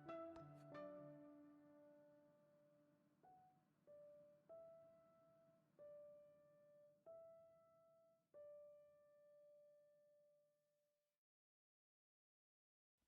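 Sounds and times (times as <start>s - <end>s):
slow piano notes: 0.0s - 2.7s.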